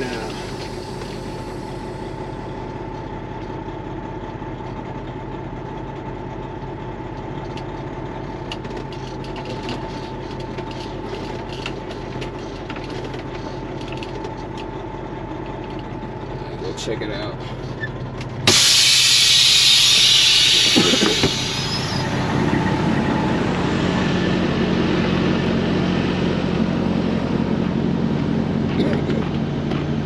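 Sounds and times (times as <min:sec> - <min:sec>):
high hum: 0:00.0 - 0:03.2, 0:18.4 - 0:30.0
diesel truck engine idling: 0:00.0 - 0:30.0.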